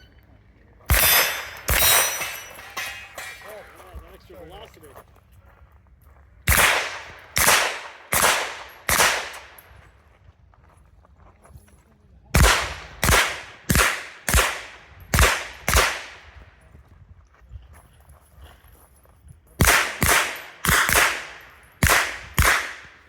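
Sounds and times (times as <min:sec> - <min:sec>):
pistol shots with echo: 0:00.9 - 0:03.4, 0:06.5 - 0:09.8, 0:12.4 - 0:16.5, 0:19.6 - 0:23.0.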